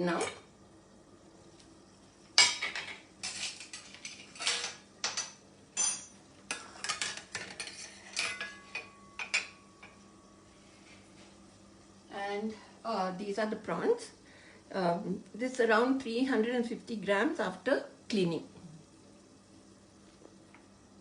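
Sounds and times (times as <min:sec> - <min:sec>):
faint steady hum: 0:00.0 - 0:21.0
dishes and utensils clattering: 0:02.4 - 0:10.0.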